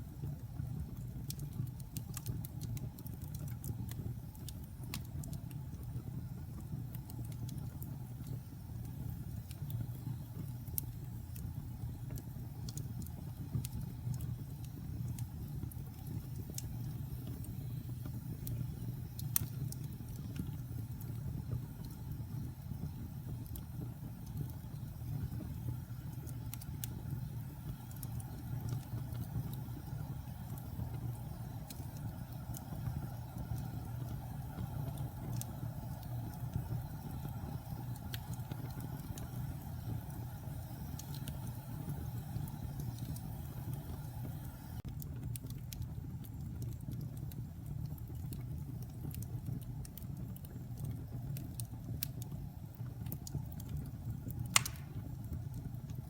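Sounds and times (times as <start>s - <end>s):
fire crackles and pops: 0.0s - 56.0s
fire low rumble: 0.0s - 56.0s.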